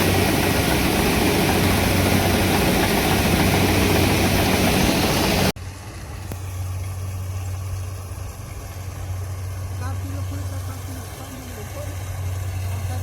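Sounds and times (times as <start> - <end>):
dense rushing noise: 0.0 - 5.6
farm machinery engine running: 0.0 - 5.6.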